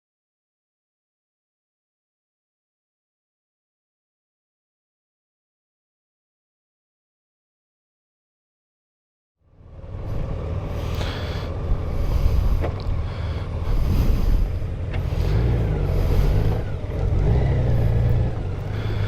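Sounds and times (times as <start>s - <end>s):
motorcycle engine rumble: 9.5s - 19.0s
wind on microphone: 13.6s - 14.7s.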